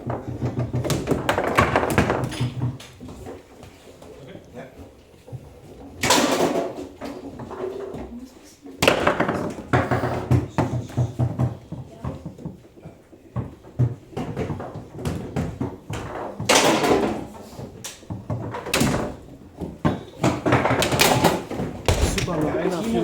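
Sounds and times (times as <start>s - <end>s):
foosball rods clacking: 13.4s - 23.0s
foosball ball knocking: 18.4s - 23.0s
sharp loud hits: 21.9s - 22.7s.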